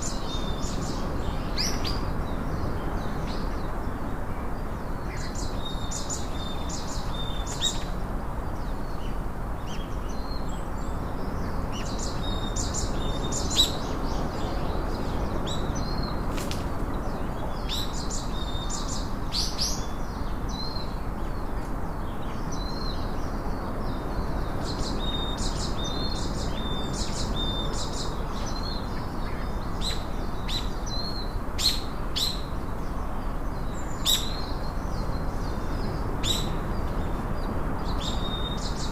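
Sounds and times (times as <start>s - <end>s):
songbirds chirping: 0.0s - 38.9s
steady background hiss: 0.0s - 38.9s.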